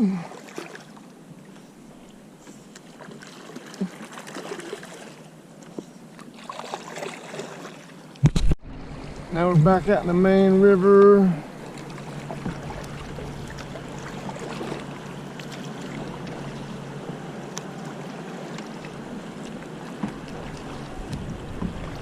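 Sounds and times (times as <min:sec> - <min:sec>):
river water rushing along hull: 0:00.0 - 0:22.0
small ticks and splashes: 0:06.2 - 0:07.8.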